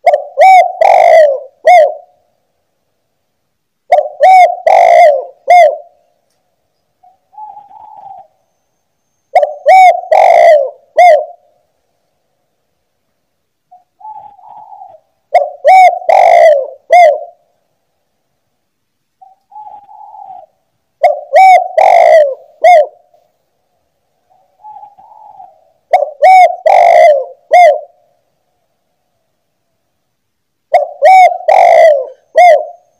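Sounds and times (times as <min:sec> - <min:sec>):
dove cooing: 0:00.0 - 0:02.2, 0:03.9 - 0:06.0, 0:07.0 - 0:08.4, 0:09.3 - 0:11.6, 0:13.7 - 0:17.5, 0:19.2 - 0:23.2, 0:24.3 - 0:28.2, 0:30.7 - 0:32.9.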